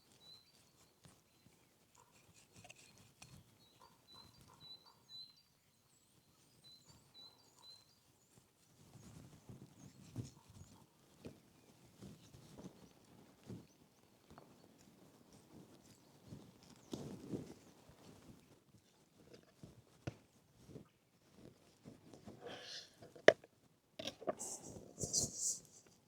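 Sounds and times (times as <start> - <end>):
small birds chirping: 0.0 - 8.4, 24.0 - 26.0.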